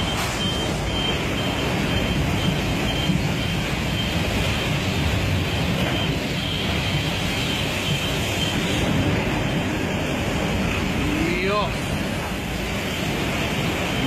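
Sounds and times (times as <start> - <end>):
faint high beep: 0.0 - 4.8
storm roaring: 0.0 - 14.0.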